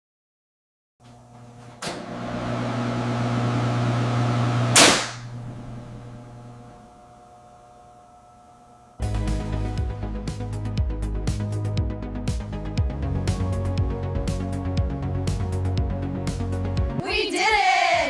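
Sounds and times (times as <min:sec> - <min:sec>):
machine hum with steady tones: 0:01.1 - 0:09.0.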